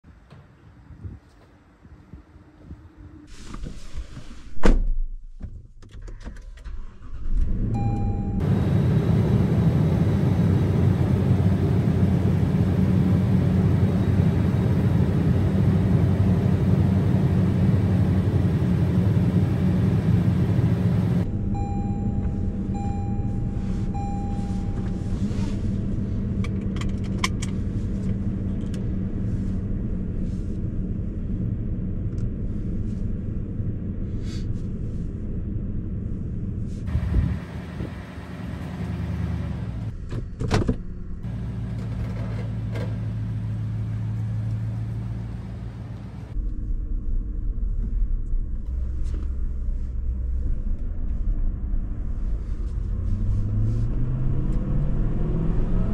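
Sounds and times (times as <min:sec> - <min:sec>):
thump: 0:04.6 - 0:05.6
car engine starting and idling: 0:06.0 - 0:55.9
chime beeping: 0:21.3 - 0:25.1.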